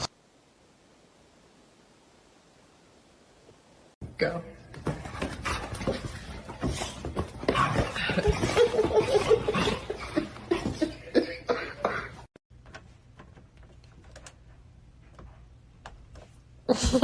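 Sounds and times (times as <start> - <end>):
person coughing and chuckling: 8.0 - 12.3, 16.7 - 17.0.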